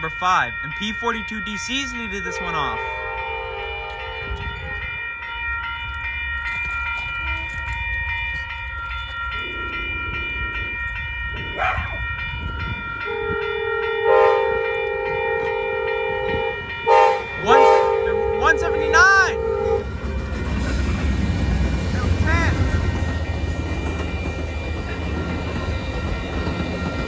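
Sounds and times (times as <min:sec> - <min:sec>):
low rumble of train: 0:02.3 - 0:27.0
train air horn blasts: 0:13.1 - 0:19.9.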